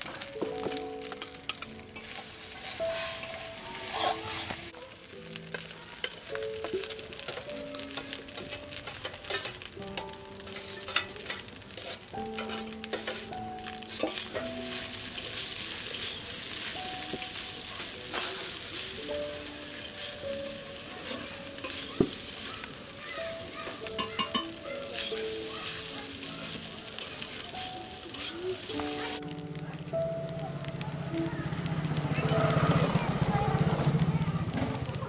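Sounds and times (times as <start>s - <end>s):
rice sizzling in a pan: 0.0s - 35.0s
metal spatula scraping a pan: 0.7s - 4.8s, 5.4s - 29.2s.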